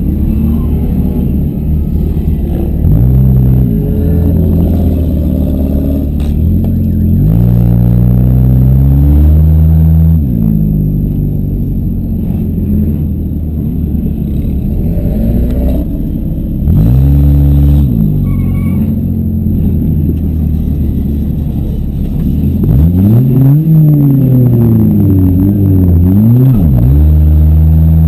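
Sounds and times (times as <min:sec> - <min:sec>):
car engines revving loudly: 0:00.0 - 0:28.0.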